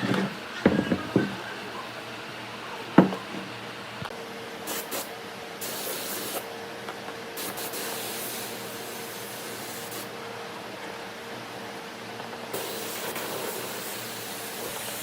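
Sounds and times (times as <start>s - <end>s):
compressed air spraying: 4.6s - 6.5s, 7.4s - 10.1s, 12.5s - 15.0s.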